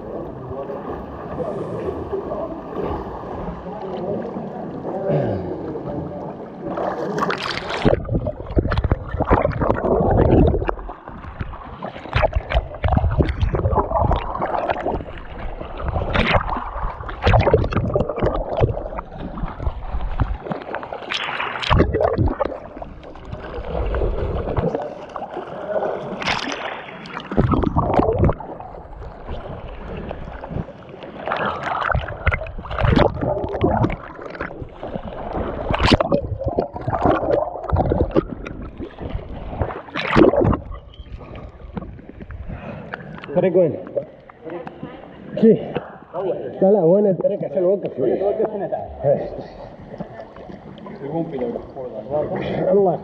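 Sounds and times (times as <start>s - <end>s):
water splashing and gurgling: 0.0s - 46.1s, 49.2s - 52.6s.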